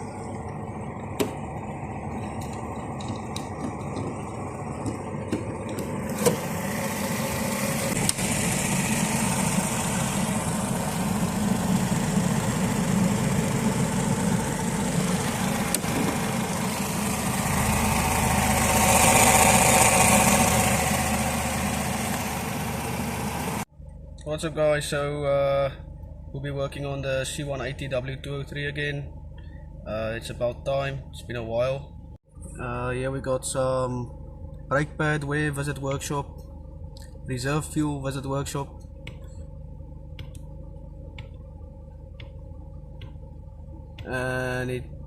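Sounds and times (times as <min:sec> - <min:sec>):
car engine running: 0:00.0 - 0:23.7, 0:34.2 - 0:45.0.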